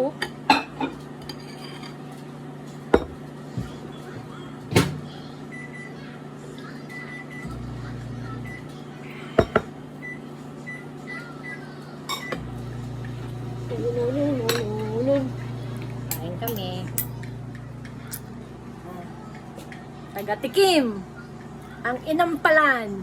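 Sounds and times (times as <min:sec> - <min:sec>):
dishes and utensils clinking: 0:00.2 - 0:03.2, 0:16.1 - 0:17.3.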